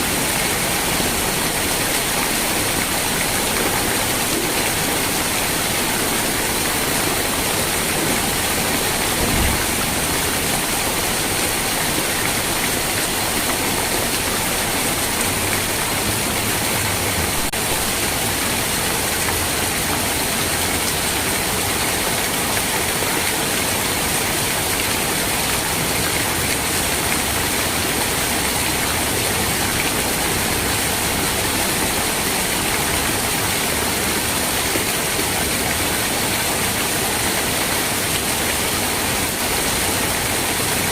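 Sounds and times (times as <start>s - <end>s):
steady rain: 0.0s - 40.9s
brief low thump: 9.1s - 10.0s.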